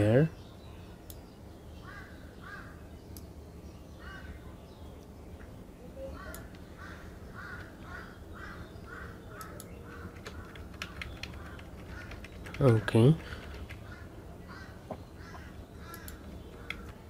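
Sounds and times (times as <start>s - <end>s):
steady low hum: 0.0s - 17.0s
bird calling: 1.8s - 3.0s, 3.9s - 4.6s, 5.8s - 17.0s
faint clicks: 15.8s - 17.0s.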